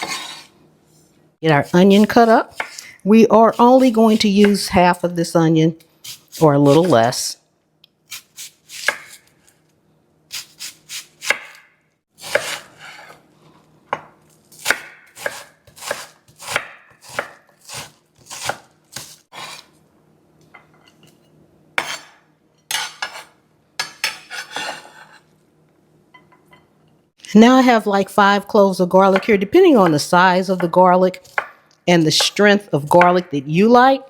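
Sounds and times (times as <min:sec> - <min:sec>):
knife chopping onion on board: 0:08.1 - 0:09.2, 0:10.3 - 0:13.2, 0:13.9 - 0:19.7, 0:21.8 - 0:24.8, 0:29.1 - 0:31.6.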